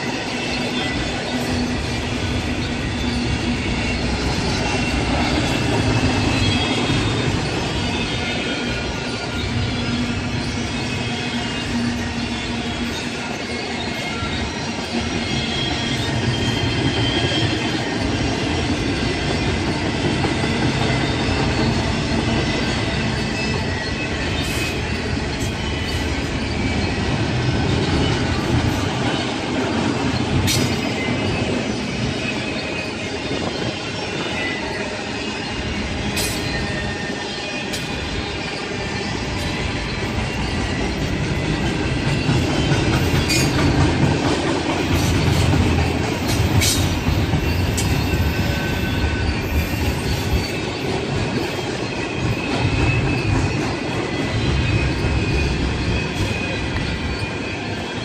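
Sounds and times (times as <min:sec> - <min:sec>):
rail clicks: 0:00.0 - 0:58.0
railroad cars rumbling past: 0:00.0 - 0:58.0
train wheels squealing: 0:00.0 - 0:58.0.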